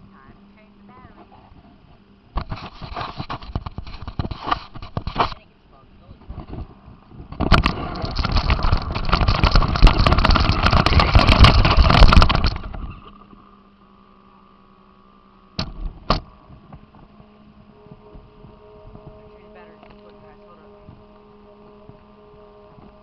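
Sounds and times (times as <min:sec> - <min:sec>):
quiet steady hum: 0:00.0 - 0:23.0
rc car rattling over rough ground: 0:02.3 - 0:05.4, 0:06.2 - 0:13.3.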